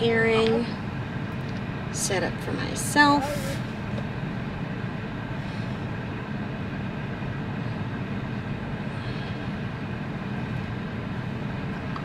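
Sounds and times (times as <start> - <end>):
vehicle rumble inside car: 0.0 - 12.0.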